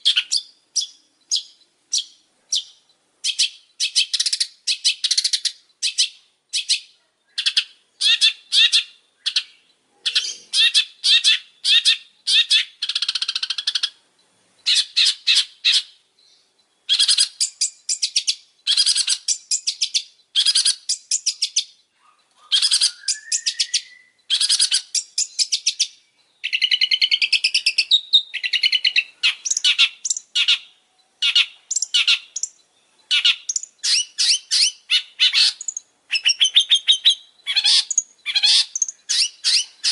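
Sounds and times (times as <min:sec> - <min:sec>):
bird chattering song: 0:00.0 - 0:39.9
rising bird whistle: 0:22.4 - 0:25.7.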